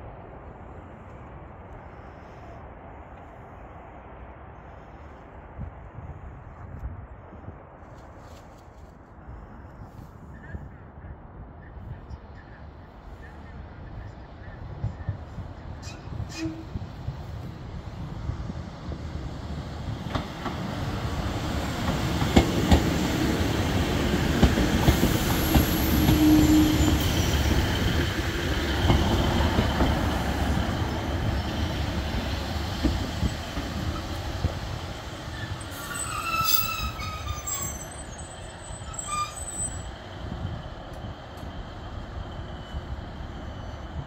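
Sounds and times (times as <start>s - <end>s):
diesel train engines running: 11.7s - 44.0s
train brakes squealing: 15.8s - 16.8s, 24.8s - 28.0s, 35.2s - 40.0s.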